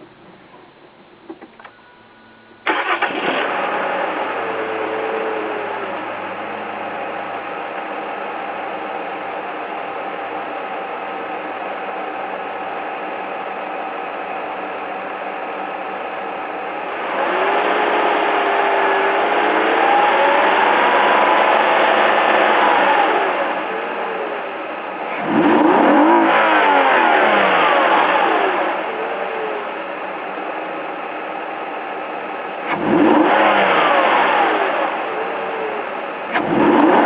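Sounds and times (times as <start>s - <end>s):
car engine starting and idling: 0.0s - 37.0s.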